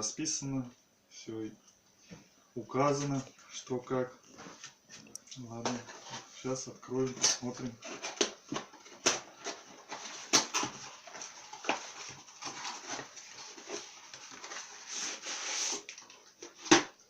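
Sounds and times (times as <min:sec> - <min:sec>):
packaging rustling: 0:05.6 - 0:17.0.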